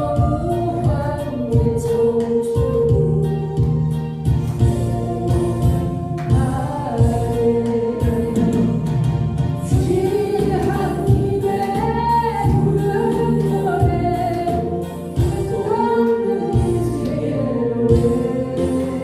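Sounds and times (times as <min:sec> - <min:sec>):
woman singing: 0:00.0 - 0:03.8, 0:09.7 - 0:19.0
backing track with steady beat: 0:00.0 - 0:19.0.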